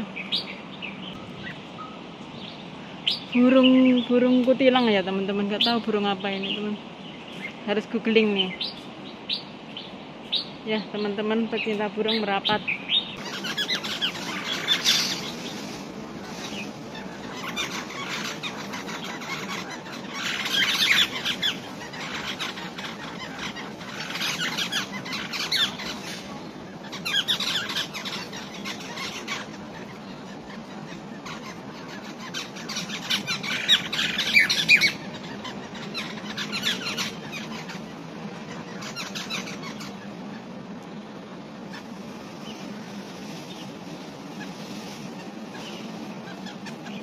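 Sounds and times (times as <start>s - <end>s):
birds chattering squawks: 0.0s - 47.0s
steady background noise: 0.0s - 47.0s.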